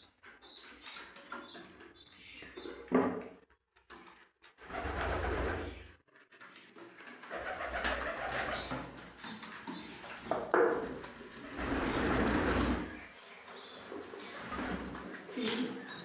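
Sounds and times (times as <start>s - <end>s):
pigeons cooing: 7.3s - 16.0s.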